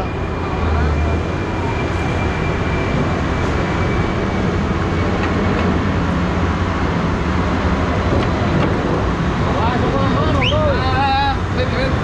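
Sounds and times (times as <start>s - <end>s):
road noise: 0.0s - 12.0s
vehicle rumble: 0.0s - 12.0s.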